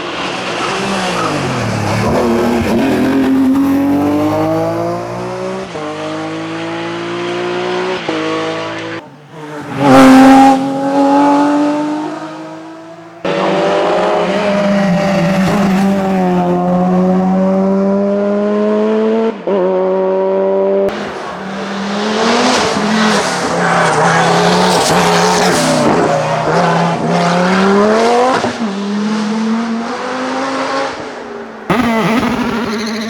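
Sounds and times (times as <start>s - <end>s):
race car engines revving: 0.0s - 33.0s
tyres rushing at speed: 31.7s - 33.0s.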